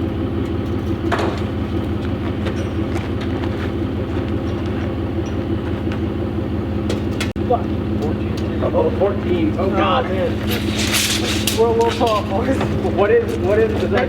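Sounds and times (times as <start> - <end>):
truck engine droning: 0.0 - 14.0
faint rattles: 10.1 - 14.0.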